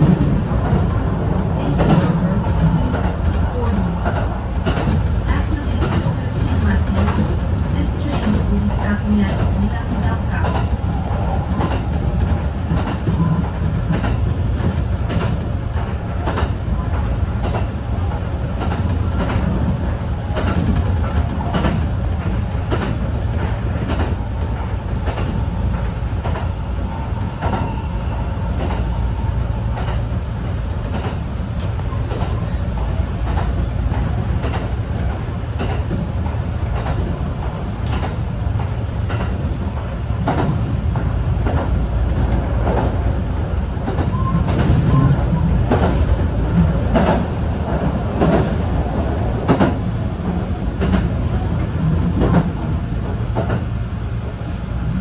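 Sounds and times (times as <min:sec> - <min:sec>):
train rumbling: 0:00.0 - 0:55.0
wheels clacking over rail joints: 0:43.8 - 0:53.6.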